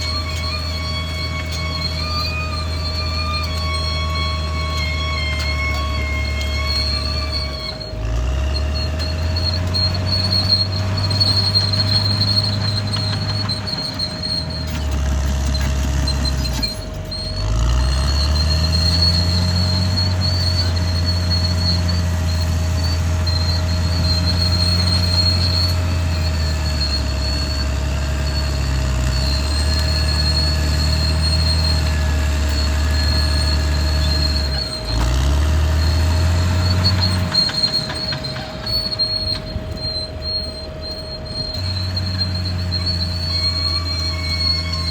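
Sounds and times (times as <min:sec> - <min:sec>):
bulldozer diesel engine under load: 0:00.0 - 0:44.9
thin wavering high-pitched tone: 0:35.8 - 0:44.9.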